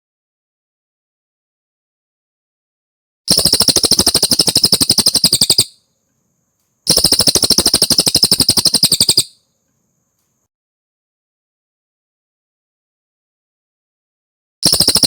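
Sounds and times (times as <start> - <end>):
bird chattering trill: 3.3 - 5.8, 6.9 - 9.4, 14.6 - 15.0.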